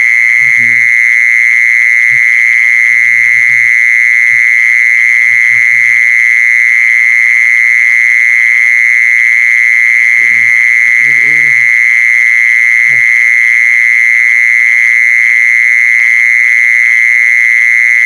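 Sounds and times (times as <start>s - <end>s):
insect buzzing trill: 0.0s - 1.0s, 10.0s - 13.4s
faint murmuring voices: 10.2s - 11.6s.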